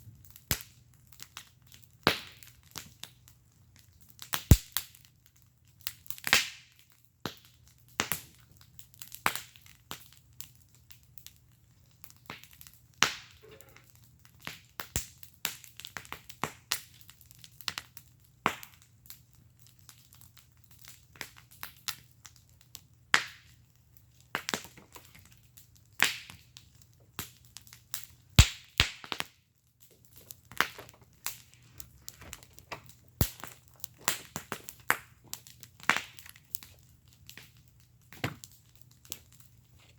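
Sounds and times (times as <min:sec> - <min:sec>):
burning wood popping: 0:00.0 - 0:39.9
wood fire crackling: 0:00.0 - 0:39.9.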